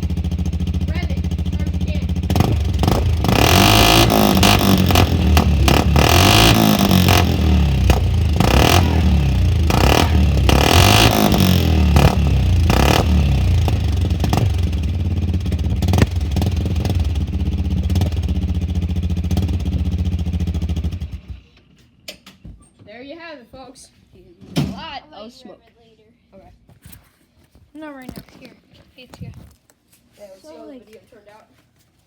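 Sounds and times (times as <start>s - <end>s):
small car engine revving: 0.0s - 21.5s.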